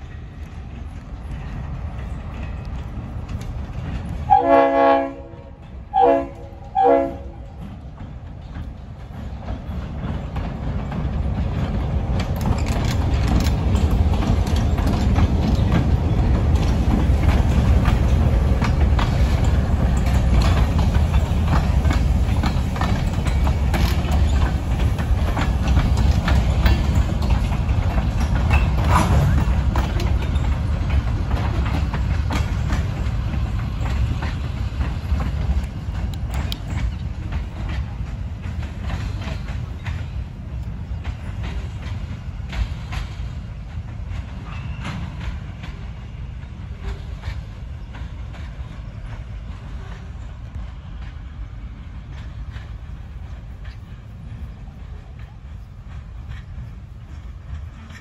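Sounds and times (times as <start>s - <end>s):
train passing: 0.0s - 58.0s
wheels clicking over rail joints: 0.0s - 58.0s
locomotive horn blasts: 4.3s - 7.5s.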